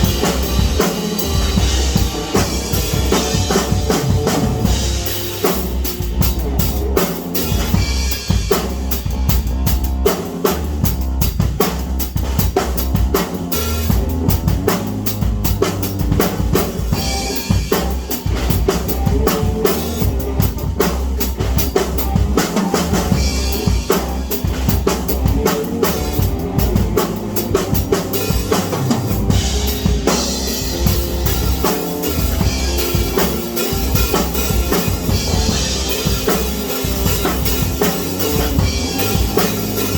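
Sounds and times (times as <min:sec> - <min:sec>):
pitched instruments playing: 0:00.0 - 0:08.2, 0:21.9 - 0:39.9
drum kit beat: 0:00.0 - 0:39.9.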